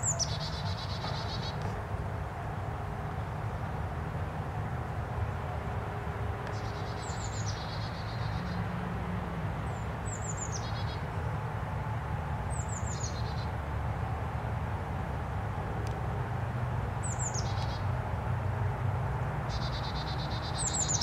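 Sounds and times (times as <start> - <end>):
songbird singing: 0.0 - 1.8, 6.5 - 8.6, 9.6 - 11.1, 12.5 - 13.6, 17.0 - 17.9, 19.5 - 21.0.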